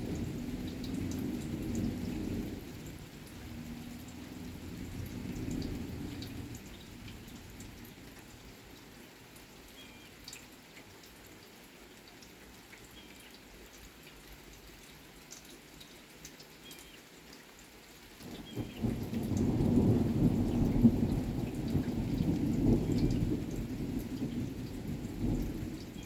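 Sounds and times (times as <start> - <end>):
thunder rumble: 0.0 - 7.9, 18.2 - 26.0
light rain with drips: 0.0 - 26.0.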